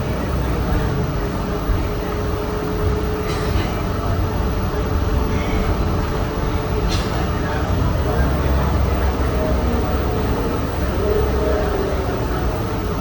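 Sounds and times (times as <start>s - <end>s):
bus engine and road rumble: 0.0s - 13.0s
steady whine: 0.0s - 13.0s.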